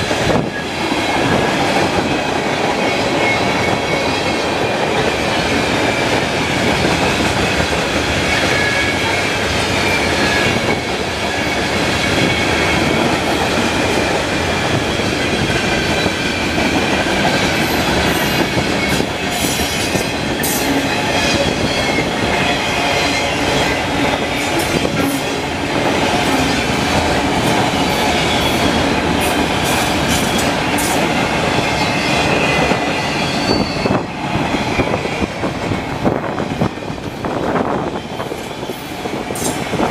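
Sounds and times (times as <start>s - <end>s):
freight train rumbling past: 0.0s - 39.9s
wind buffeting microphone: 0.0s - 39.9s
high wheel squealing: 27.8s - 35.2s.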